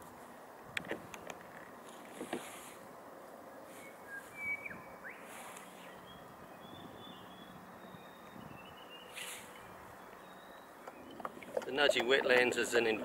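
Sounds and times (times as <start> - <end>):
background hiss: 0.0 - 12.1
birds chirping: 3.4 - 13.0.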